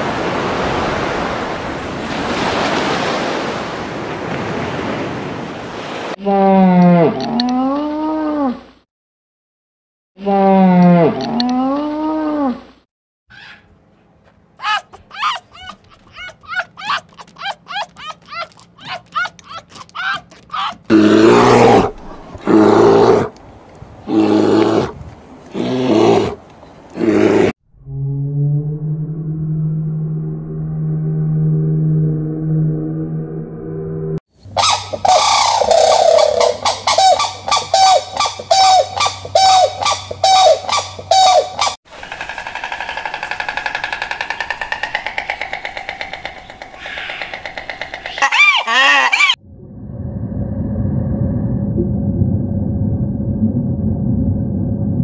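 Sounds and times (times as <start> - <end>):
bear calling: 13.3 - 13.8, 14.6 - 23.3, 34.6 - 49.4
stork bill-clattering rattle: 14.6 - 21.0, 34.6 - 48.4
crane honking calls: 34.6 - 41.8.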